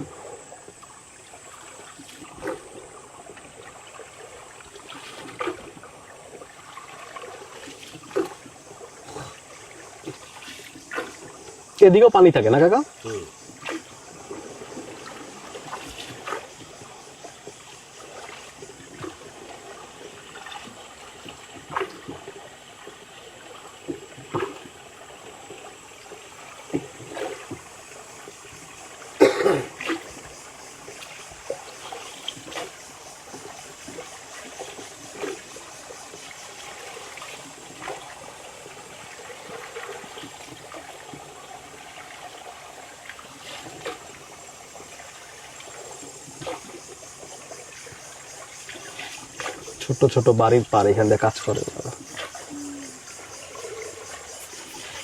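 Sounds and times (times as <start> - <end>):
water splashing against boat: 0.0 - 55.0.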